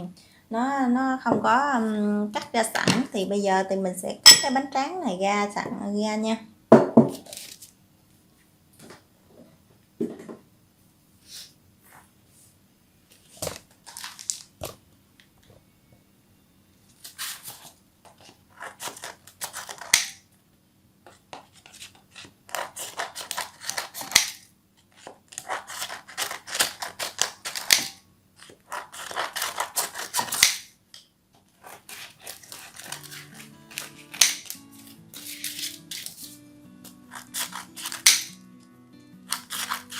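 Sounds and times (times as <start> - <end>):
scissors cutting rice paper: 18.2 - 20.2, 21.5 - 30.7, 31.5 - 38.4, 39.2 - 39.9.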